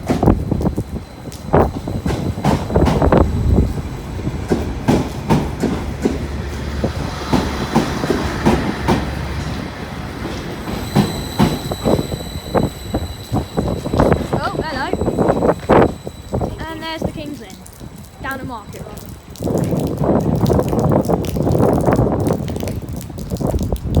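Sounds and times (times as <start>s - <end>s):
low engine hum: 0.0s - 17.4s
train wheels clicking over rail joints: 0.0s - 18.5s.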